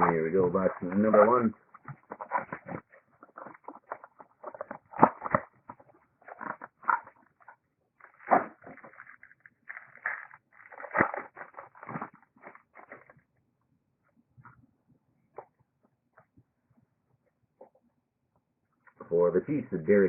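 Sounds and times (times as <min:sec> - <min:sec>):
card box rustling and clicking: 0:00.8 - 0:13.2.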